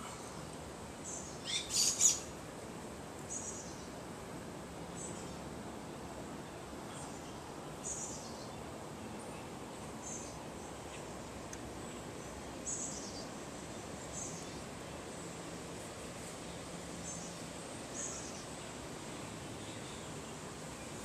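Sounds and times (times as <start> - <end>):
background hiss: 0.0 - 21.0
small bird chirping: 1.0 - 2.3.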